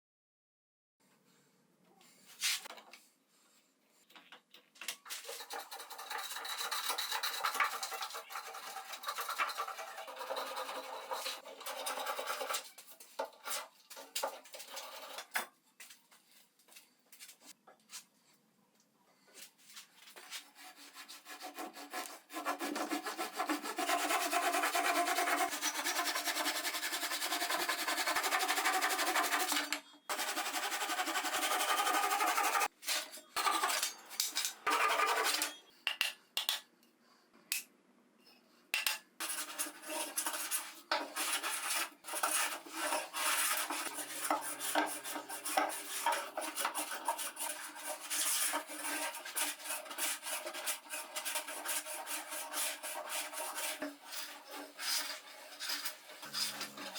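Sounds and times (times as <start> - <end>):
hand tool scraping wood: 5.2 - 15.4, 20.1 - 35.6, 39.2 - 56.9.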